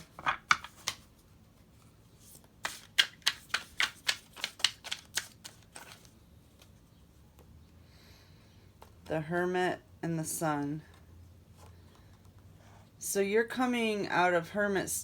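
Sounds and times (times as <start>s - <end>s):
cards being shuffled: 0.0s - 1.2s, 2.2s - 6.8s.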